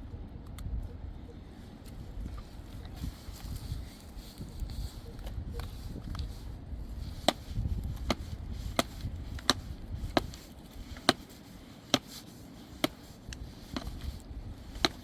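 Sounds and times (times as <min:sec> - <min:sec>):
chopping blows: 0:07.1 - 0:15.0.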